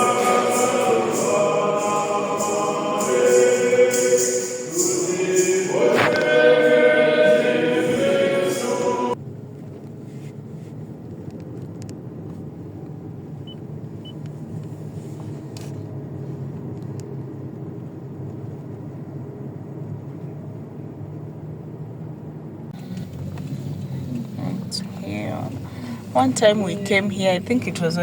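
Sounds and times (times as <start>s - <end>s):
car driving rumble: 9.0s - 28.0s.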